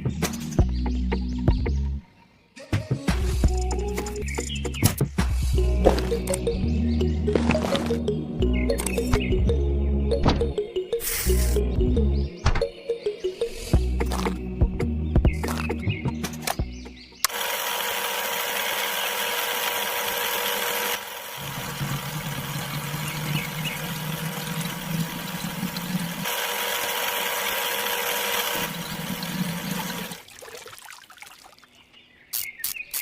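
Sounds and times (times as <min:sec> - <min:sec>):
small electric motor whine: 0:17.3 - 0:30.2.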